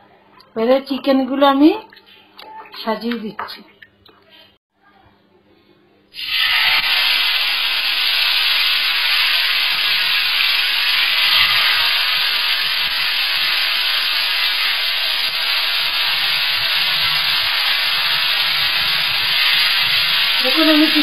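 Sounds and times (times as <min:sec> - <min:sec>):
chicken sizzling in a pan: 0:06.2 - 0:21.0.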